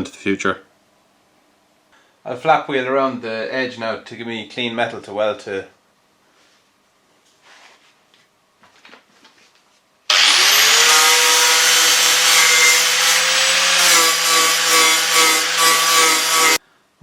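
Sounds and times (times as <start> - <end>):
angle grinder grinding metal: 10.1 - 16.6.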